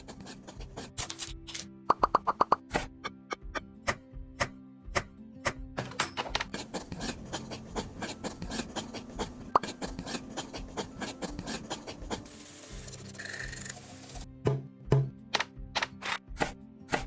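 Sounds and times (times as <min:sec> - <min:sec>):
faint background music: 0:00.0 - 0:17.0
hand tool rasping scraping: 0:06.5 - 0:12.2.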